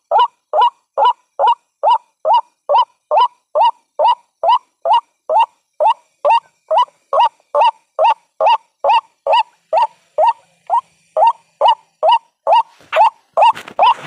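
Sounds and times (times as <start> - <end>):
waterhen short rising calls: 0.0 - 14.0.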